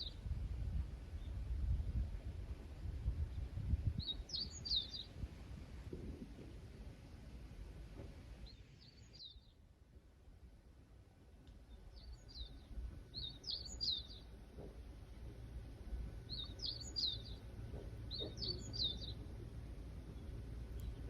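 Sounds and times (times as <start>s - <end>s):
low rumble of wind: 0.0s - 21.0s
songbird chirping: 11.5s - 14.4s, 16.2s - 21.0s.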